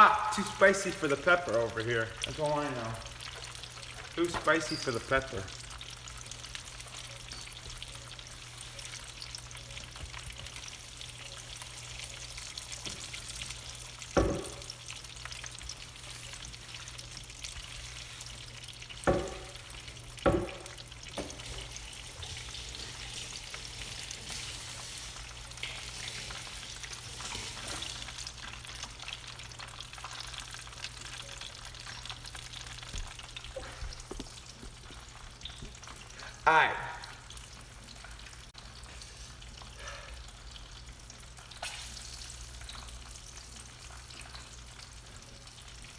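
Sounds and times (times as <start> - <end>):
chicken sizzling in hot oil: 0.0 - 45.9
sharp knocks: 19.1 - 19.6, 20.3 - 21.5.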